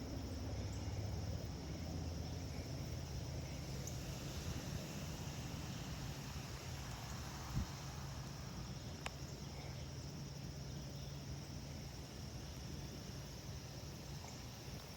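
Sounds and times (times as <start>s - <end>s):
crickets chirping: 0.0s - 14.9s.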